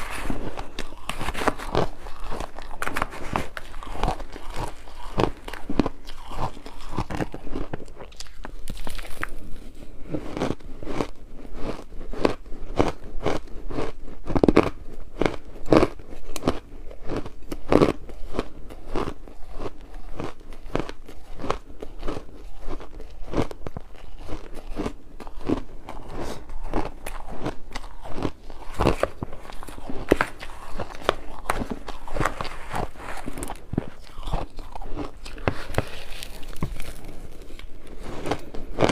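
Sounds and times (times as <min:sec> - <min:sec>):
ice being crunched by teeth: 0:00.0 - 0:38.9.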